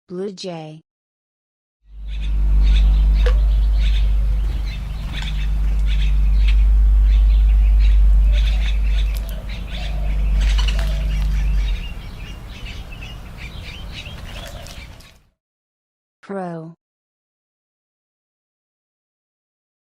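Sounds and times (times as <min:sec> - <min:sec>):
loud low rumble: 0:01.9 - 0:14.1
blue jay calling: 0:01.9 - 0:15.2.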